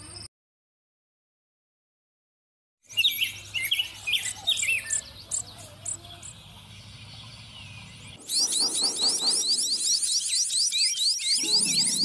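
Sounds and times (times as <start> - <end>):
small birds chirping: 2.8 - 12.0.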